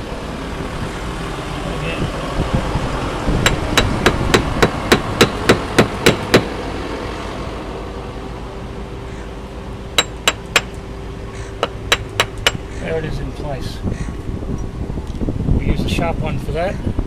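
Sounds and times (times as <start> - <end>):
caulking iron blows: 2.4 - 6.6.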